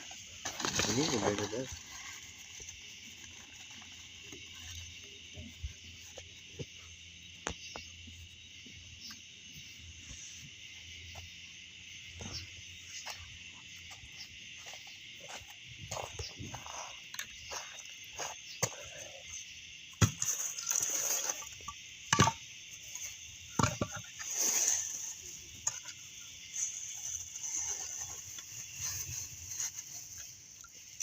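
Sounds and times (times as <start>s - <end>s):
insects and frogs calling: 0.0s - 31.0s
sharp pops and knocks: 19.9s - 20.5s, 21.7s - 22.4s, 23.6s - 24.1s.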